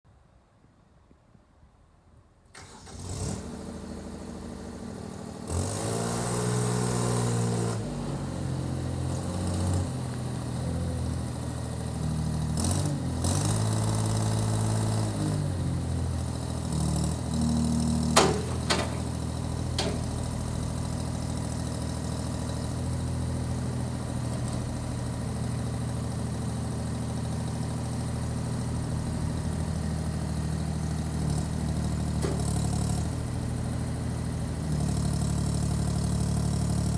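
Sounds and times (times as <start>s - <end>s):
diesel engine starting and revving: 2.5s - 36.9s
metallic clanks: 18.1s - 21.0s, 32.2s - 33.1s.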